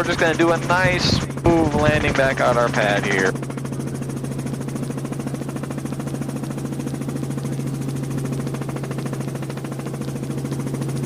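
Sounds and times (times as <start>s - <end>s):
helicopter engine hum: 0.0s - 11.0s
helicopter rotor beat: 0.0s - 11.0s.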